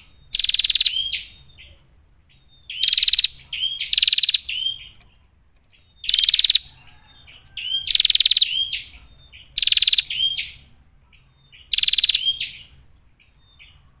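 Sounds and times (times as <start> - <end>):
bird buzzy rattling trills: 11.6 - 13.9.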